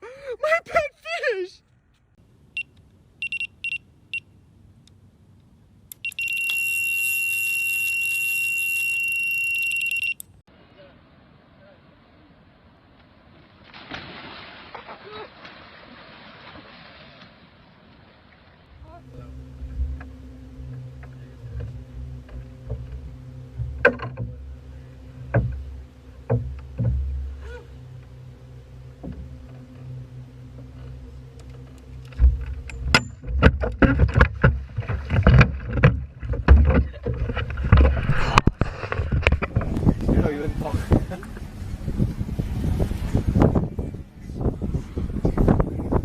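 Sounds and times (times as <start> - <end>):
boat motor humming: 2.2 - 10.4, 18.0 - 46.0
electronic bite alarm beeps: 2.6 - 4.3, 6.0 - 10.4
continuous high-pitched alarm tone: 6.0 - 10.3
sharp clicks and knocks: 20.7 - 24.6, 25.2 - 27.3, 30.6 - 40.0.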